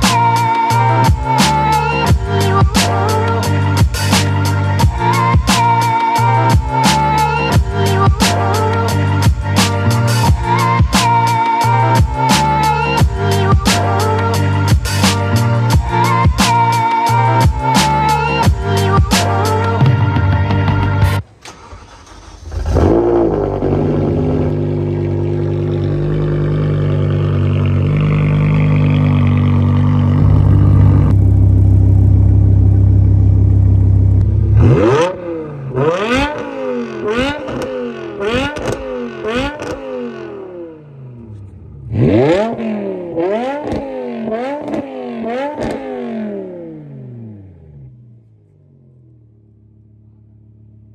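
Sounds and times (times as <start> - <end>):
loud steady drone: 0.0 - 21.2, 22.6 - 39.7
car engine revving: 21.4 - 50.9.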